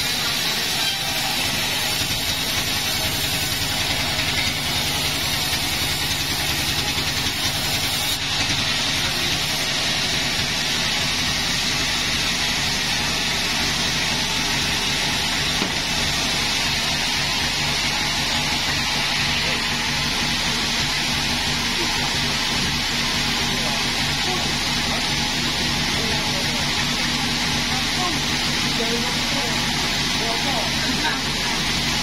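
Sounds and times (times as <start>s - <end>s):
hiss: 0.0s - 12.7s
sawmill engine running: 0.0s - 32.0s.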